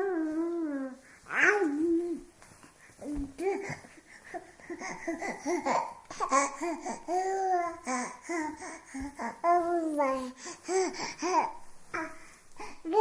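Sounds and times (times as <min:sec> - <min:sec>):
baby laughing and babbling: 0:03.0 - 0:13.0.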